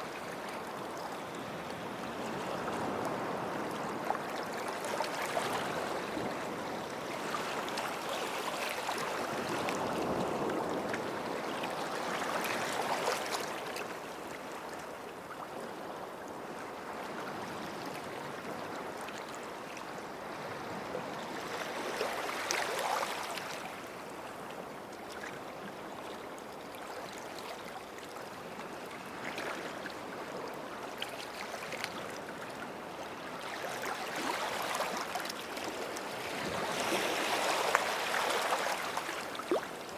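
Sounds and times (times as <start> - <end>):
small waves washing on sand: 27.0 - 39.9.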